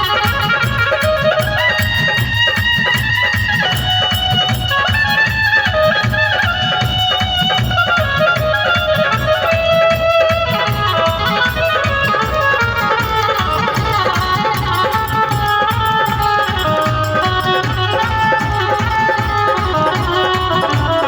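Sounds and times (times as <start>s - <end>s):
steady drum beat: 0.0s - 21.0s.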